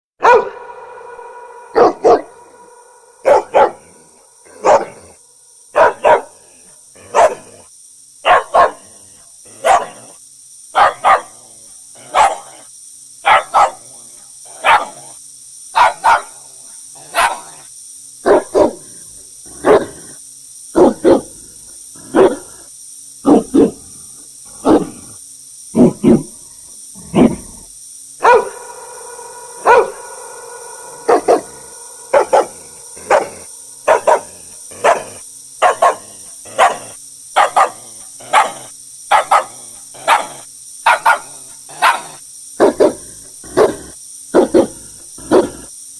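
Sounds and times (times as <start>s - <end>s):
dog barking: 0.2s - 7.6s, 8.2s - 8.9s, 9.5s - 11.4s, 12.0s - 12.6s, 13.2s - 13.9s, 14.5s - 15.2s, 15.8s - 16.4s, 17.0s - 17.6s, 18.2s - 18.9s, 19.6s - 20.0s, 20.8s - 21.4s, 22.0s - 22.6s, 23.2s - 23.8s, 24.6s - 25.1s, 25.8s - 26.3s, 28.2s - 45.7s
faint steady high hiss: 0.2s - 45.9s.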